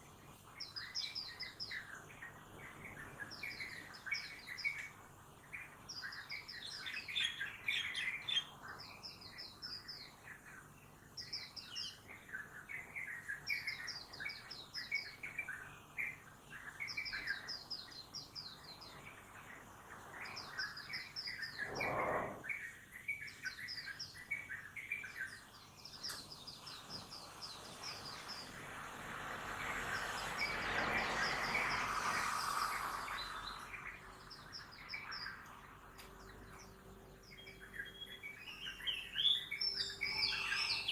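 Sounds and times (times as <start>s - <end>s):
small birds chirping: 0.0s - 40.9s
town background noise: 25.4s - 40.9s
vehicle passing: 27.7s - 34.4s.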